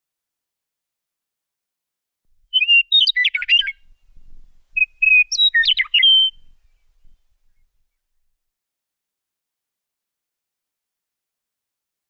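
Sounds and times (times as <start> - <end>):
songbird singing: 2.5 - 7.9.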